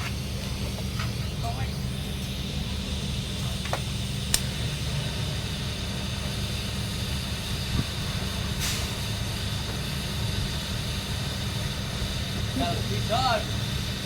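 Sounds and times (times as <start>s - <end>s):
welding machine droning: 0.0s - 14.0s
short hiss: 8.5s - 9.1s.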